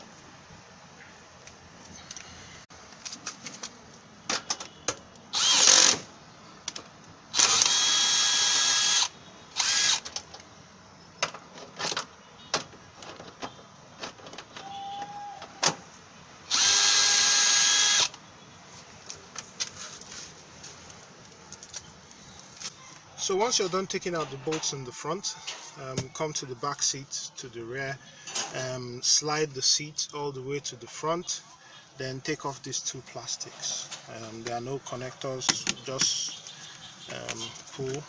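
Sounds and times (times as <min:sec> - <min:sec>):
power tool spinning bolts: 0:05.3 - 0:06.0, 0:07.3 - 0:10.2, 0:16.5 - 0:18.2.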